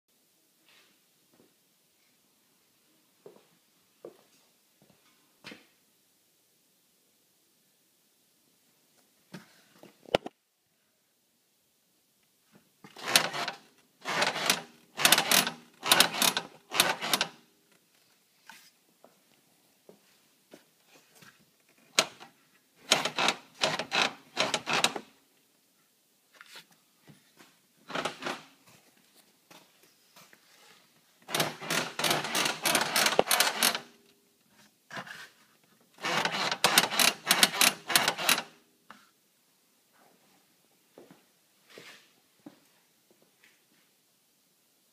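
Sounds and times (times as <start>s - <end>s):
atv creaking: 13.0s - 17.4s, 31.3s - 33.9s.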